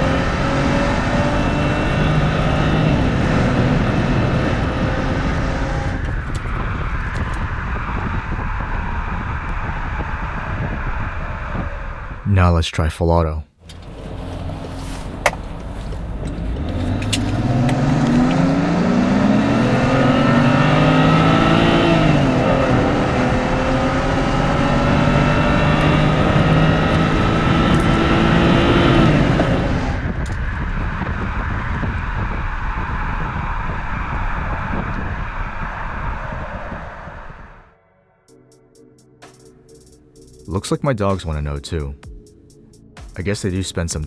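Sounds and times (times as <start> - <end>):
car engine accelerating: 0.0 - 12.2, 13.6 - 37.7
road and wind noise: 0.0 - 12.3, 13.6 - 37.8.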